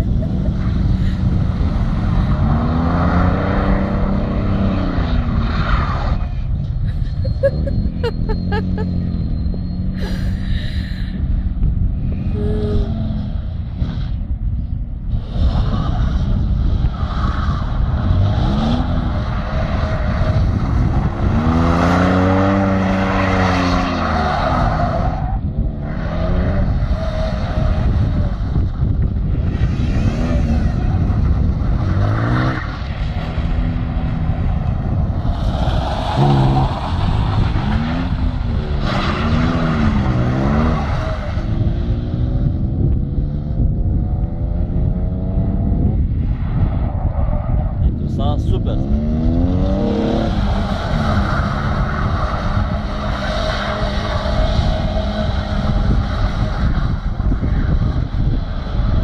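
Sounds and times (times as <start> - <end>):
car engines revving: 0.0 - 59.0
tyres skidding on asphalt: 0.1 - 6.8, 15.1 - 42.3, 48.9 - 59.0.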